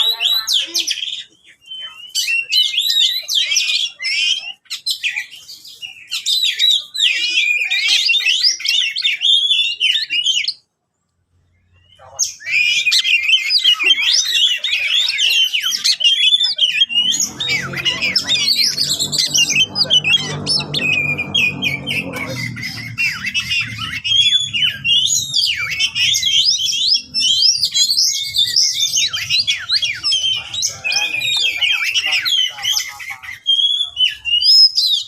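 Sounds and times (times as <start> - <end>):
bird singing whistles and chirps: 0.0 - 10.7, 11.6 - 35.0
low hum: 16.9 - 27.0.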